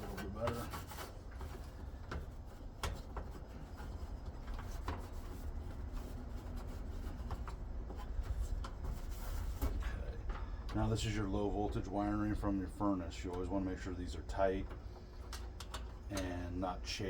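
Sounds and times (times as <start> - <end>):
rag rubbing over wiring: 0.0 - 10.1.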